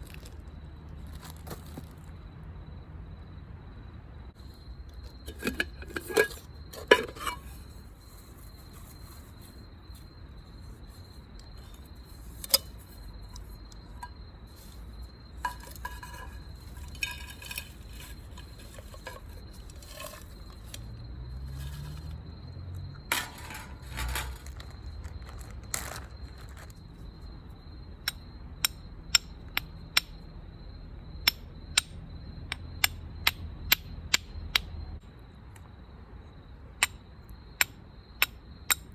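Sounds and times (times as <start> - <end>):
cookware and utensils clinking: 5.3 - 7.6.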